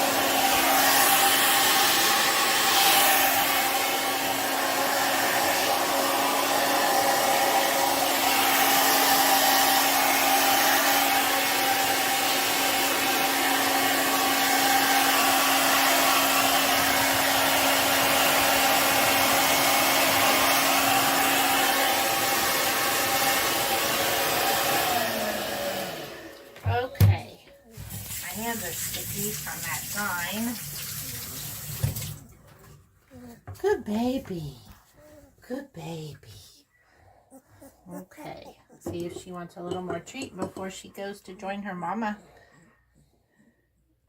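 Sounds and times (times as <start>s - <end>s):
hair dryer running: 0.0s - 27.2s, 27.8s - 32.2s.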